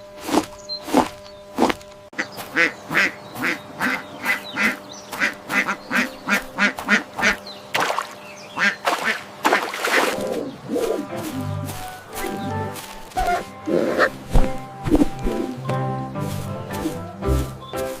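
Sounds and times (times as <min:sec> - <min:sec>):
duck quacking: 0:02.2 - 0:14.2.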